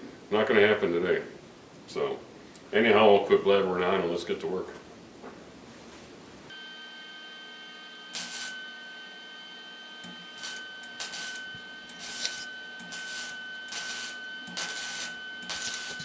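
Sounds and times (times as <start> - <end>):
steady high whine: 6.5 - 16.0
welder crackling hisses: 8.1 - 8.6, 10.3 - 16.0.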